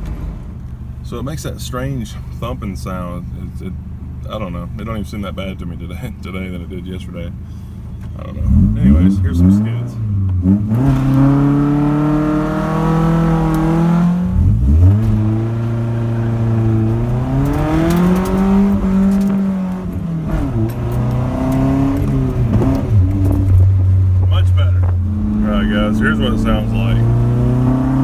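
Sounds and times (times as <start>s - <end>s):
car engine revving hard: 8.3s - 28.0s.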